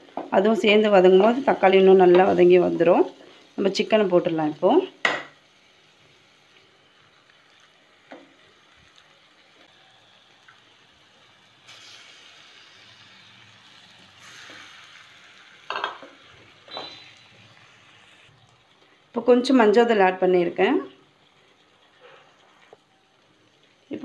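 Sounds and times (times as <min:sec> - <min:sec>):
chicken sizzling in a pan: 0:00.0 - 0:24.0.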